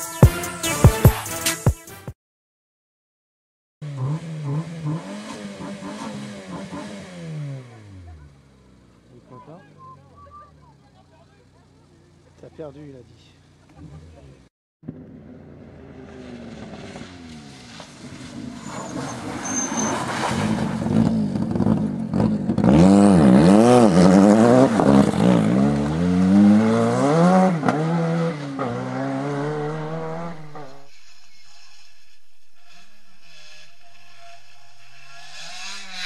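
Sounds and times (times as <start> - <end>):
rally car engine revving past: 14.9 - 36.0.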